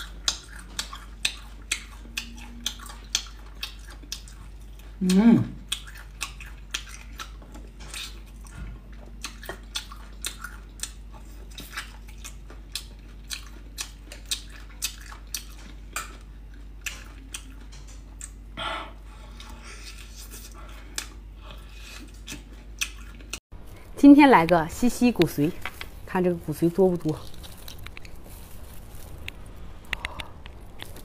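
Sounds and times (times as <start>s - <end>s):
chewing and lip-smacking: 0.0s - 18.6s, 19.3s - 23.4s.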